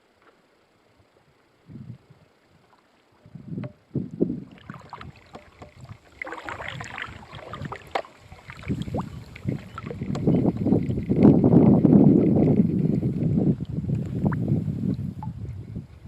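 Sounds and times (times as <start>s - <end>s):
wind noise on microphone: 1.6s - 2.6s, 3.2s - 16.0s
paddle splashing in water: 4.4s - 11.0s
paddle knocks: 4.6s - 8.7s.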